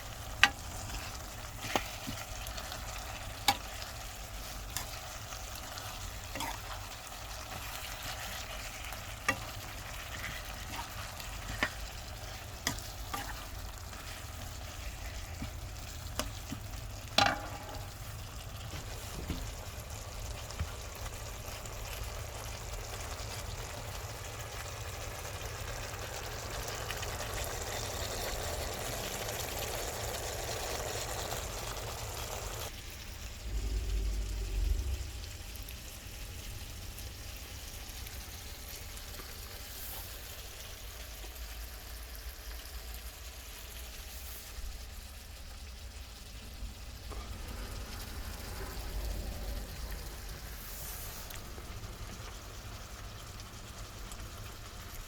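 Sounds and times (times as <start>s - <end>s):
chicken sizzling in a pan: 0.0s - 55.0s
utensil knocking against pan: 17.2s - 17.9s
steady low hum: 33.1s - 36.6s.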